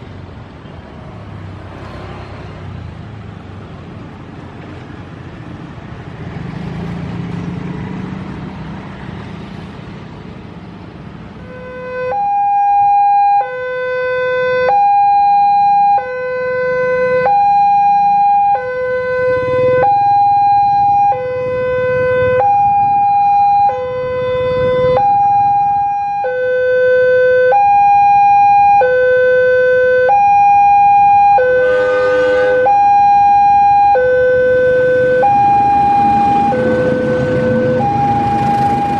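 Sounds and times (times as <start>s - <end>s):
road traffic: 0.0s - 38.9s
level crossing two-tone alarm: 11.8s - 19.2s, 22.3s - 24.2s, 24.9s - 31.7s, 32.5s - 38.9s
harsh blare: 17.3s - 38.9s.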